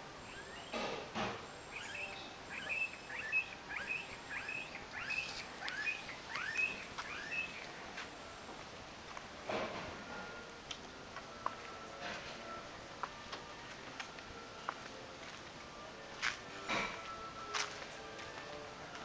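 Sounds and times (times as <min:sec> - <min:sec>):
bird chirping: 0:00.0 - 0:08.0.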